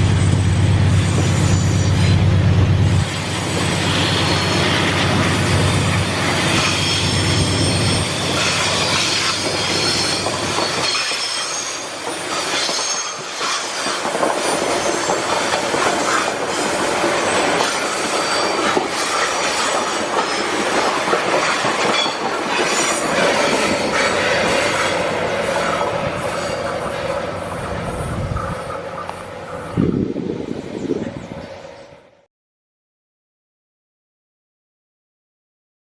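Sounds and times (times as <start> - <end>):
diesel locomotive engine hum: 0.0 - 32.3
steel wheels squealing on rails: 0.0 - 32.3
wheels clacking over rail joints: 3.2 - 29.9.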